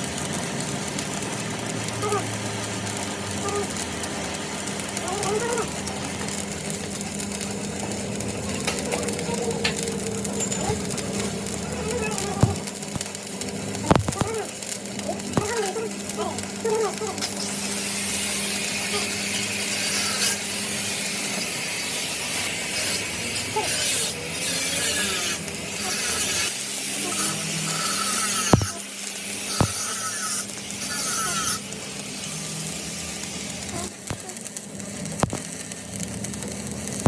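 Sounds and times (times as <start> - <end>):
hissy rasping tool noise: 13.8 - 34.4.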